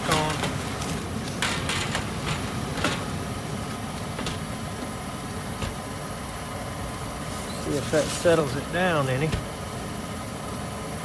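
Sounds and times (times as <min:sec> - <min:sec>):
metal knocks and clatters: 0:00.0 - 0:05.9
gas furnace rushing: 0:00.0 - 0:11.0.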